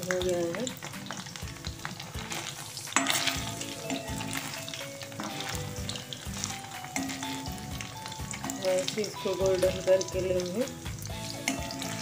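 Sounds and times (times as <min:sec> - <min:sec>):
food sizzling in hot oil: 0:00.0 - 0:12.0
spatula stirring: 0:00.8 - 0:12.0.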